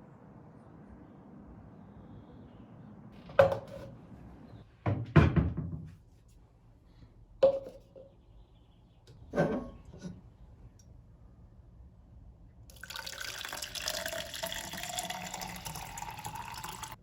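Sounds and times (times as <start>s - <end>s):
knocks and thuds of handling: 3.3s - 3.9s, 4.9s - 6.0s.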